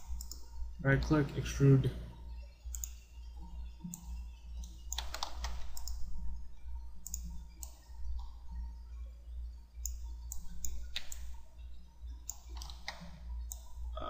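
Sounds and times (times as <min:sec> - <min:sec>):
computer mouse clicks: 0:00.0 - 0:00.5, 0:02.7 - 0:03.0, 0:03.8 - 0:06.0, 0:07.0 - 0:08.4, 0:09.8 - 0:11.4, 0:12.2 - 0:13.7
steady low hum: 0:00.0 - 0:14.0.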